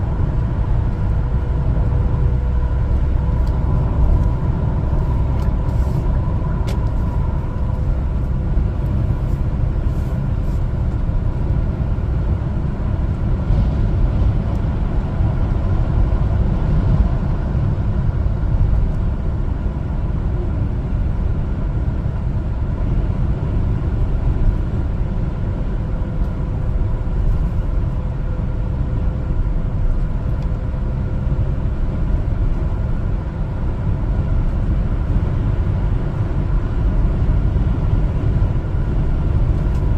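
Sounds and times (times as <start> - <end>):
truck engine and road rumble: 0.0 - 39.9.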